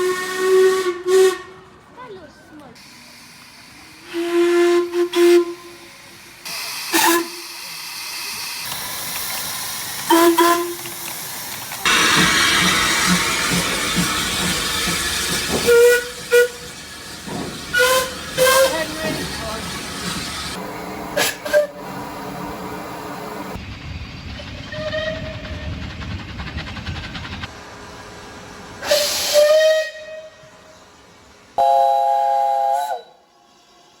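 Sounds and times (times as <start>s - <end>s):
steam locomotive whistle blasts: 0.0s - 1.6s, 4.0s - 5.9s, 6.9s - 7.6s, 10.1s - 10.8s, 15.5s - 16.8s, 17.7s - 18.9s, 21.2s - 21.9s, 24.7s - 25.4s, 28.8s - 30.5s, 31.6s - 33.3s
loud steam hissing: 2.8s - 34.0s.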